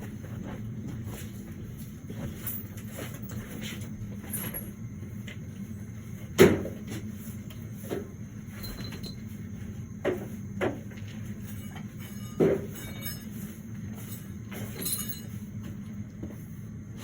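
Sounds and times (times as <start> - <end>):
steady low hum: 0.0 - 17.0
objects knocking and clattering: 10.0 - 13.4.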